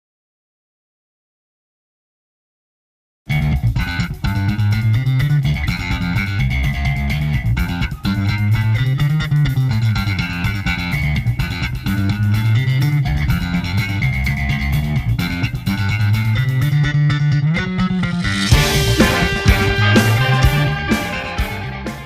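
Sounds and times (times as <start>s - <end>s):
drums: 3.3s - 16.9s, 17.5s - 22.0s
electric bass guitar line: 3.3s - 22.0s
guitar: 3.3s - 22.0s.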